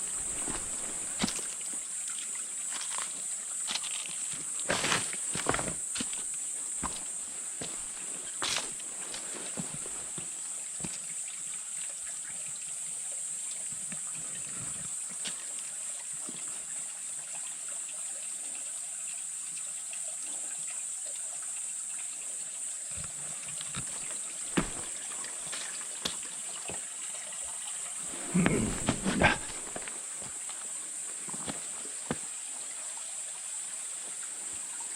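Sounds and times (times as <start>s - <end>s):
steady high-pitched hiss: 0.0s - 34.9s
thuds or steps: 4.7s - 6.2s, 24.5s - 26.2s, 28.1s - 30.4s.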